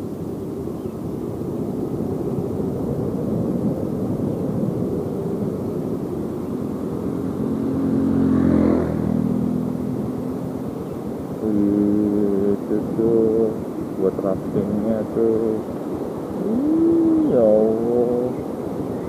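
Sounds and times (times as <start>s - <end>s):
wind: 0.0s - 19.0s
motorcycle road rumble: 1.4s - 19.0s
engine note rising: 7.0s - 13.5s, 16.4s - 18.4s.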